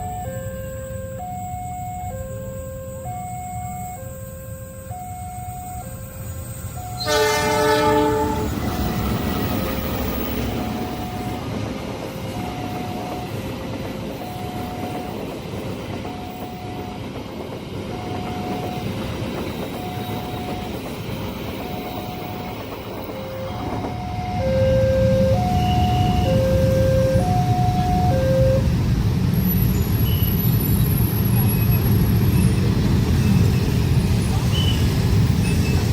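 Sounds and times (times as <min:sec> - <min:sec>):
level crossing alarm two-note signal: 0:00.0 - 0:08.9, 0:10.1 - 0:11.5, 0:12.3 - 0:13.5, 0:14.2 - 0:15.3, 0:16.0 - 0:17.1, 0:17.9 - 0:19.0, 0:19.6 - 0:20.8, 0:21.6 - 0:28.7
passing train rumble: 0:00.0 - 0:35.9.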